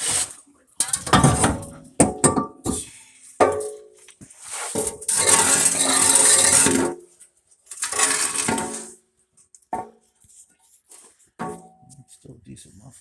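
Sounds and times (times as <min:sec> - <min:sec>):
metal scraping rattle: 0:00.0 - 0:03.8, 0:04.7 - 0:07.0, 0:07.7 - 0:09.0.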